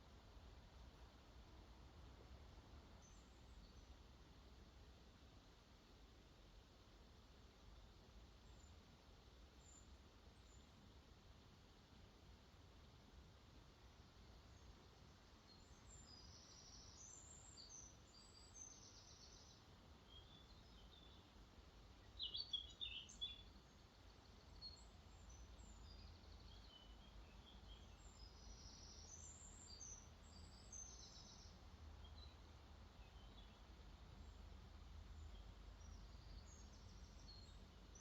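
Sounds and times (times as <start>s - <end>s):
low rumble of flowing water: 0.0s - 38.0s
songbirds singing: 2.5s - 4.7s, 7.3s - 11.0s, 14.0s - 38.0s.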